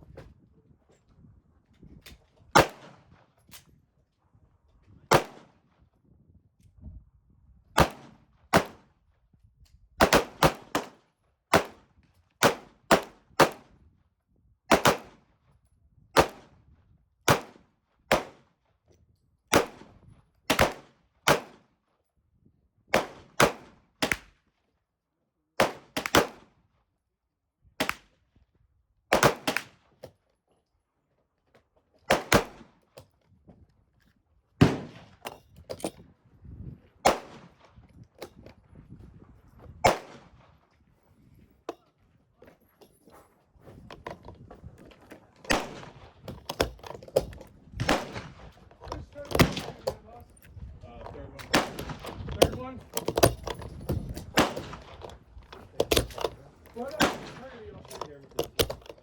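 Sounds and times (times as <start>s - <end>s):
gunshots with ringing tail: 51.4s - 53.2s, 54.3s - 55.1s, 55.9s - 58.0s.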